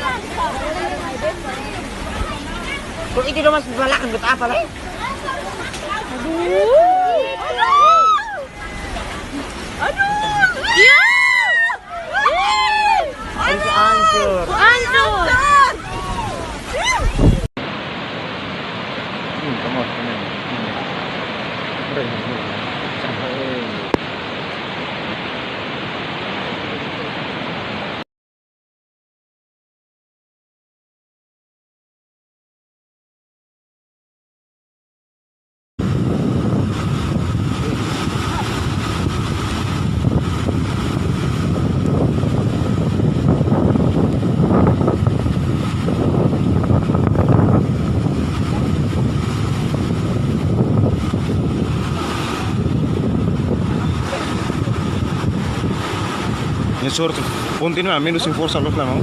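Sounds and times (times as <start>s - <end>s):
wind buffeting microphone: 0.0s - 18.8s, 35.8s - 59.0s
floodwater rushing: 0.0s - 28.0s, 35.8s - 59.0s.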